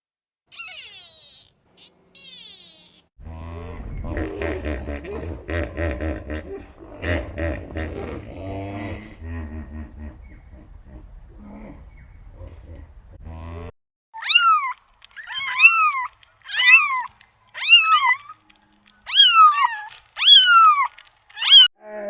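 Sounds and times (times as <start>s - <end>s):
cat meowing: 0.5s - 3.0s
low rumbling animal sound: 3.2s - 13.7s.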